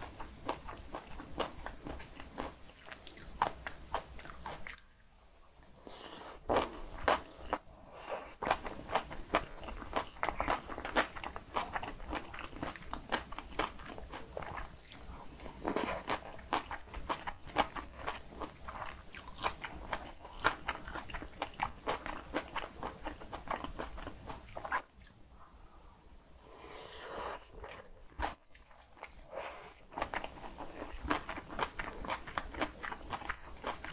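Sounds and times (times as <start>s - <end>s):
wet chewing and crunching: 8.4s - 25.2s, 27.6s - 33.9s.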